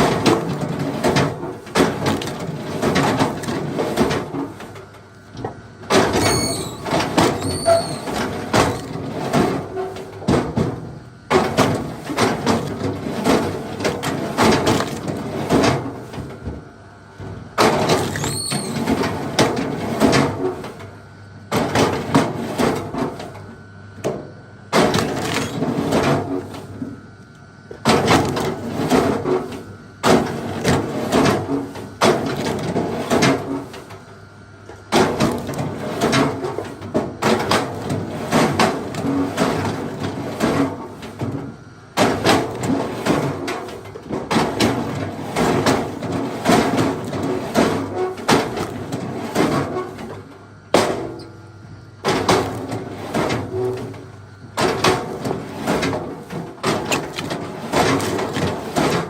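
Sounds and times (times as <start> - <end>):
wood clattering: 54.6 - 59.0.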